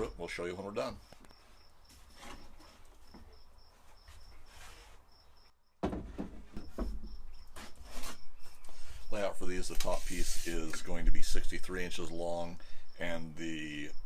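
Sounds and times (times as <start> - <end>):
cricket chirping: 0.0 - 9.6, 10.6 - 14.0
knocks and rustling: 1.1 - 5.0, 5.8 - 8.6.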